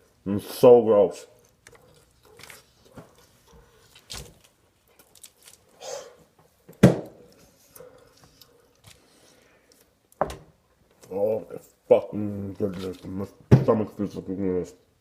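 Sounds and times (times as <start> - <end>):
man chewing food: 1.3 - 10.2.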